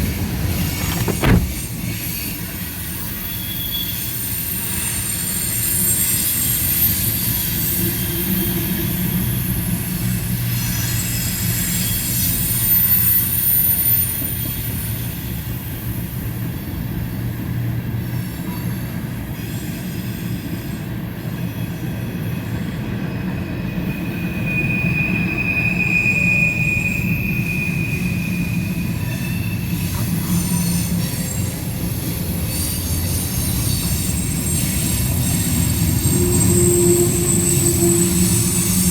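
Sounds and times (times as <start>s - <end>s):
train wheels rumbling on rail: 0.0s - 38.9s
high-pitched wheel squeal: 24.2s - 31.4s, 32.4s - 38.9s.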